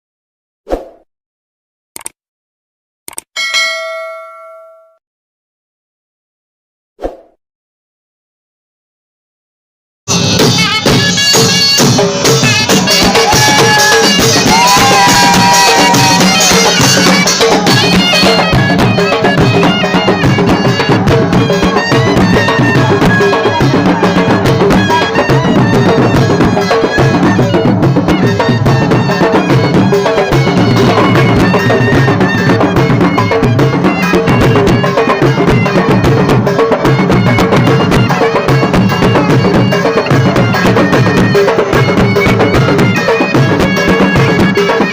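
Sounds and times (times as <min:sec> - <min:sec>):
drums beating steady rhythm: 0:10.1 - 0:44.9.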